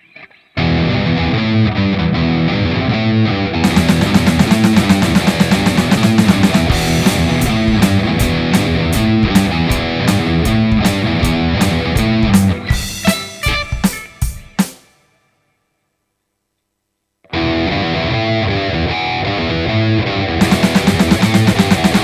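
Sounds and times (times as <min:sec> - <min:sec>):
heavy rock music: 0:03.6 - 0:15.0, 0:20.4 - 0:22.0.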